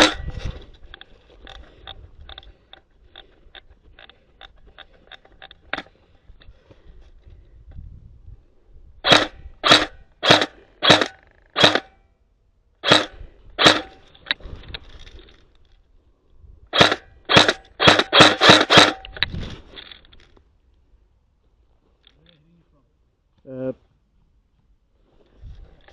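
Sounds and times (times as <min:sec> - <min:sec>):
airsoft gun shots: 0:00.0 - 0:00.2, 0:09.0 - 0:11.9, 0:12.8 - 0:14.0, 0:16.8 - 0:19.1.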